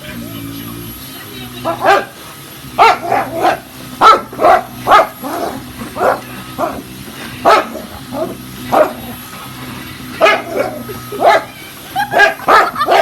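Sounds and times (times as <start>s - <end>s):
vacuum cleaner hum: 0.0s - 13.0s
dog barking: 1.6s - 2.2s, 2.8s - 9.2s, 10.2s - 13.0s.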